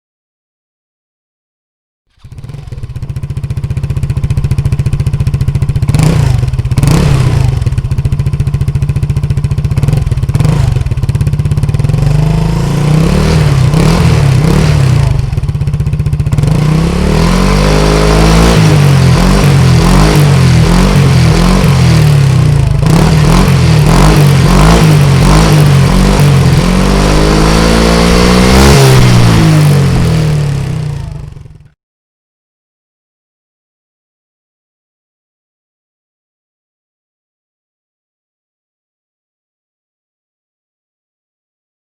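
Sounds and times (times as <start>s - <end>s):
scooter engine idling and revving: 2.1s - 31.8s.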